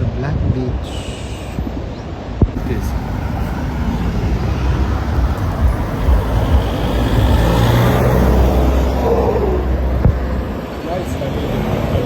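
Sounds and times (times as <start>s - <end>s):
road traffic going by: 0.8s - 12.0s
vehicle engine hum: 2.5s - 12.0s.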